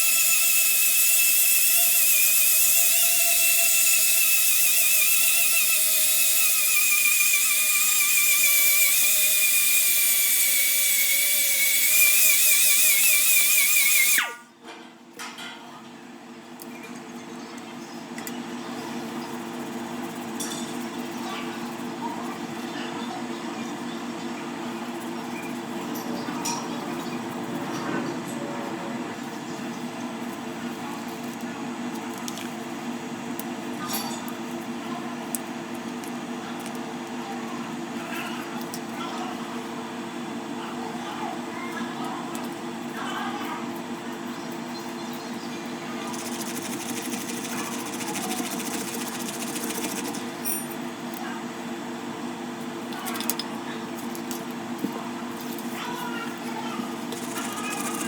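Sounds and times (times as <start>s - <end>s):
pneumatic grinder whining: 0.0s - 14.4s, 46.0s - 50.4s, 57.1s - 58.0s
mechanical hum: 0.0s - 58.0s.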